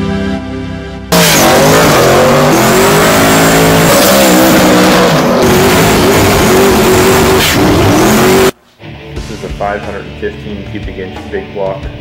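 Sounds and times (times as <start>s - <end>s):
car engine revving hard: 1.1s - 8.6s.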